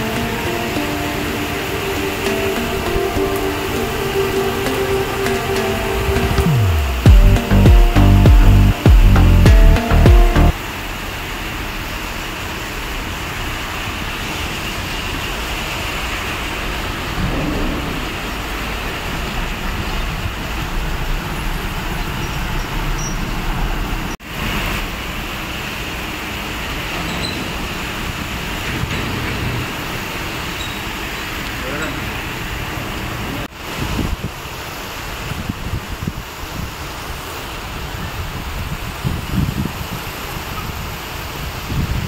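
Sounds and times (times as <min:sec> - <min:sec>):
vehicles passing on wet road: 0:00.0 - 0:08.7, 0:09.9 - 0:34.0
heavy rain on street: 0:00.0 - 0:42.0.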